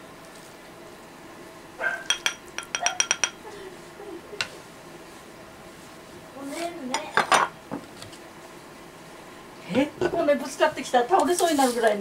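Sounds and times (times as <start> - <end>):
dishes clinking together: 2.1 - 3.4.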